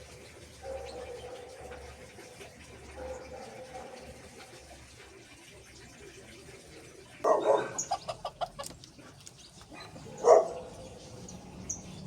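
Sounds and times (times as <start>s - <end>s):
chicken clucking: 7.5s - 9.3s.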